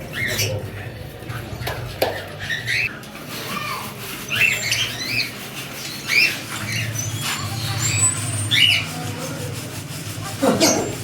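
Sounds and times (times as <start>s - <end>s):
budgerigars chirping: 0.0s - 2.9s, 4.3s - 9.0s.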